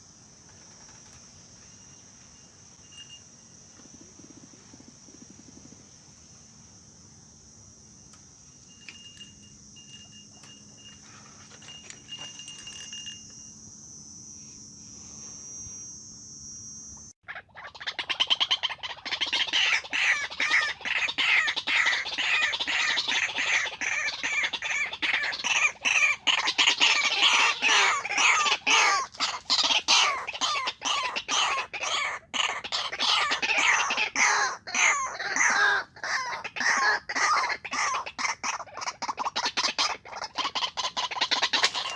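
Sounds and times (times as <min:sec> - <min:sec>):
high-pitched buzz: 0:07.8 - 0:17.2
bird harsh repeated calls: 0:17.2 - 0:41.9.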